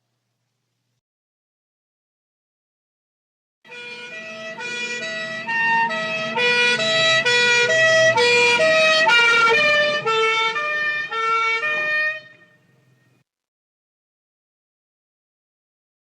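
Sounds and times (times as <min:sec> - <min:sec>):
low vehicle rumble: 0:03.7 - 0:13.2
two-tone emergency siren: 0:03.7 - 0:13.2.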